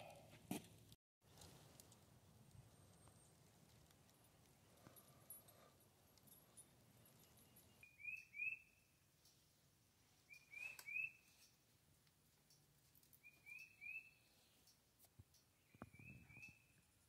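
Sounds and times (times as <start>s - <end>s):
songbird chirping faintly: 6.2s - 17.0s.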